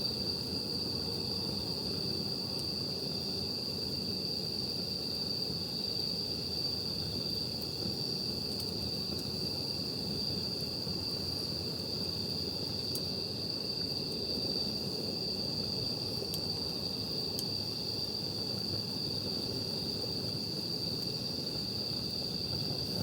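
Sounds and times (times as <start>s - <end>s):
crickets trilling: 0.0s - 23.0s
campfire popping: 6.2s - 23.0s.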